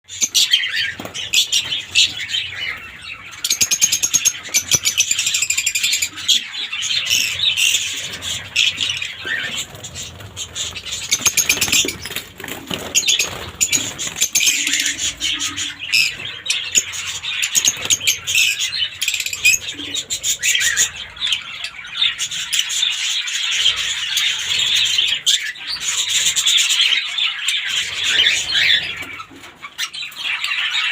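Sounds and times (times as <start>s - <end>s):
lovebirds chattering and screeching: 0.1s - 30.9s
wings fluttering: 0.7s - 3.0s, 7.1s - 16.4s.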